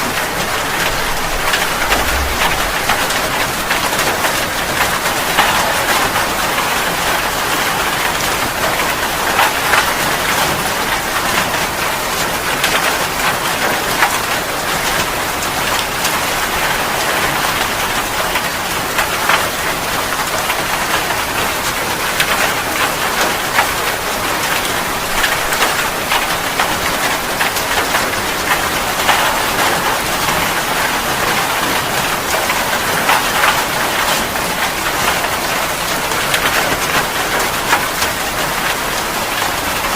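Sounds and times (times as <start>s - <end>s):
rain hissing: 0.0s - 6.1s
raindrops tapping a surface: 4.1s - 39.9s.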